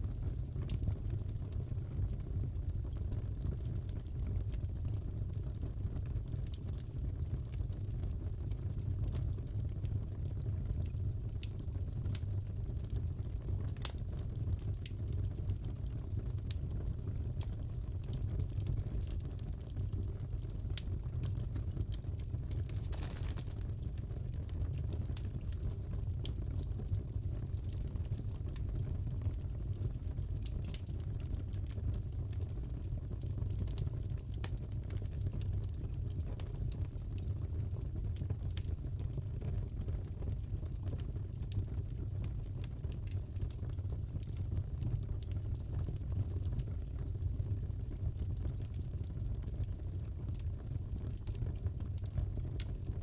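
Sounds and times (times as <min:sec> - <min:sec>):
fireplace fire crackling: 0:00.0 - 0:53.0
sharp pops of burning wood: 0:22.6 - 0:23.9.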